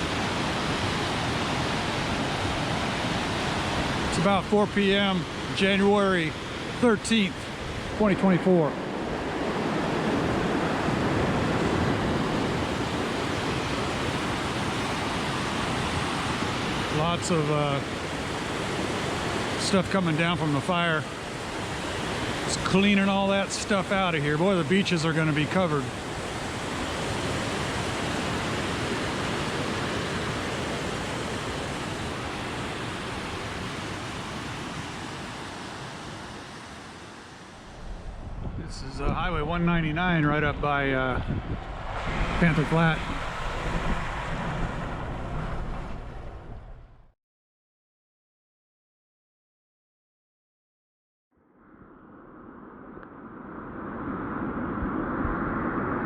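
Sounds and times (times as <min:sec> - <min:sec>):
fast river water rushing: 0:00.0 - 0:37.7.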